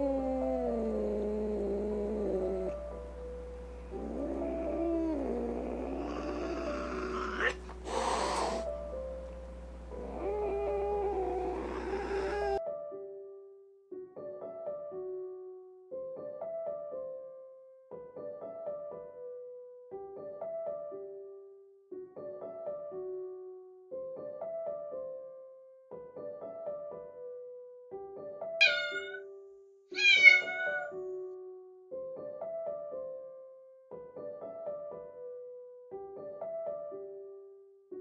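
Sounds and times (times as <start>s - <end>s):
soft piano music: 0.0s - 38.0s
kitten meowing: 28.6s - 29.2s, 29.9s - 31.0s.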